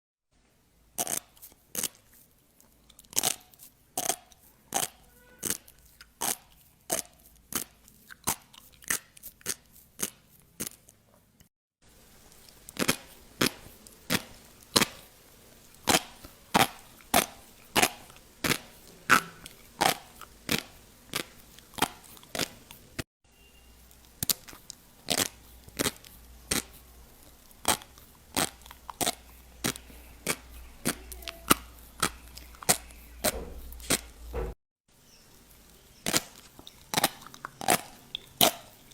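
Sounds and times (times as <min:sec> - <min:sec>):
fish roe popping: 0:12.2 - 0:15.1.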